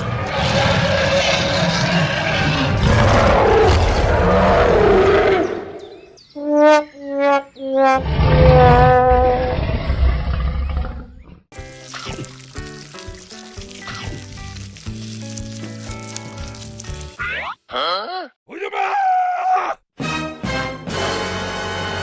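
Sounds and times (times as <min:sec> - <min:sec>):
rough roar: 0:00.0 - 0:06.0, 0:07.9 - 0:11.3.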